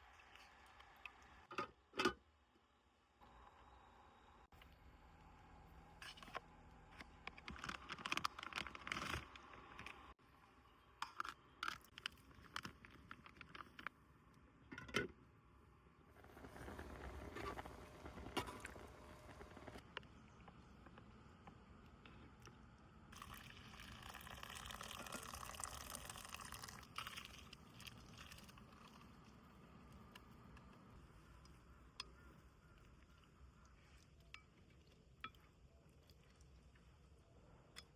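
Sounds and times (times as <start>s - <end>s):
water running: 23.2s - 29.0s.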